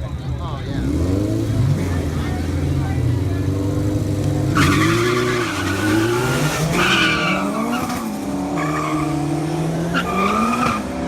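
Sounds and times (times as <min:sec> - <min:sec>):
car engine revving: 0:00.0 - 0:11.0
tyres squealing: 0:04.5 - 0:09.2.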